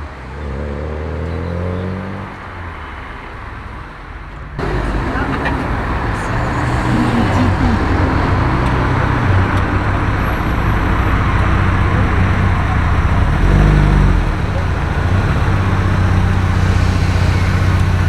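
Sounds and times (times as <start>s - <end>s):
road traffic noise: 0.0s - 18.0s
car engine running: 4.6s - 18.0s.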